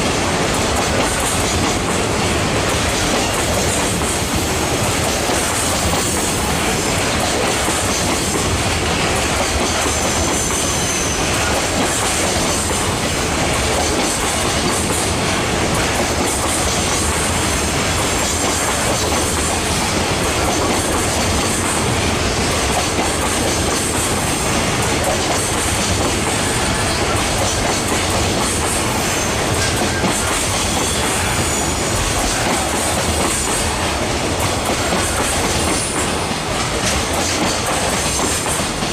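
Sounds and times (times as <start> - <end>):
train wheels clacking over rail joints: 0.0 - 38.9
faint high wheel squeal: 10.3 - 11.5, 30.7 - 32.0.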